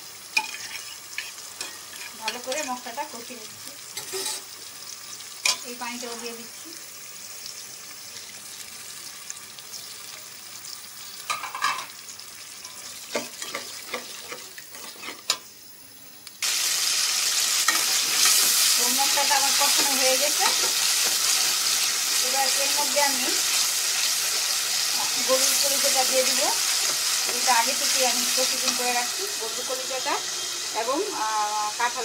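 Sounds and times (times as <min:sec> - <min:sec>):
paste sizzling in hot oil: 0:00.0 - 0:15.8, 0:16.4 - 0:32.0
metal spoon scraping a pan: 0:00.4 - 0:02.9, 0:04.0 - 0:04.5, 0:12.6 - 0:15.5, 0:17.6 - 0:22.2.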